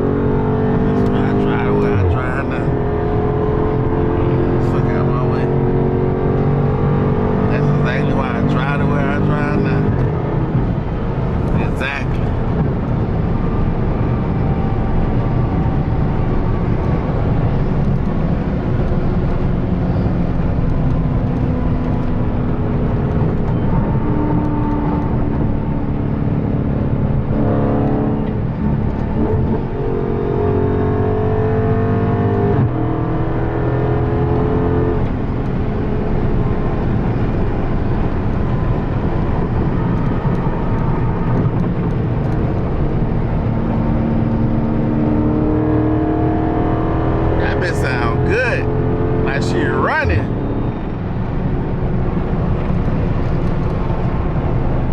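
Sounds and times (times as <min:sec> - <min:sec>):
car engine accelerating: 0:00.0 - 0:54.9
road noise: 0:00.0 - 0:54.9.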